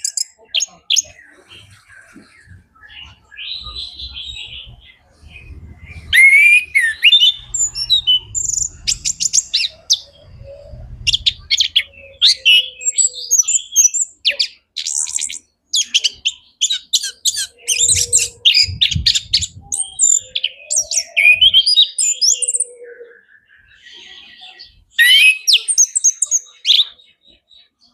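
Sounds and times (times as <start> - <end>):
thrush singing: 0.7 - 13.1
low rumble: 2.4 - 12.4.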